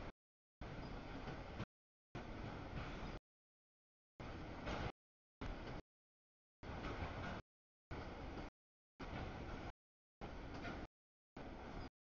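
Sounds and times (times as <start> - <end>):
freight train wheels rumbling on rail: 6.6 - 7.4.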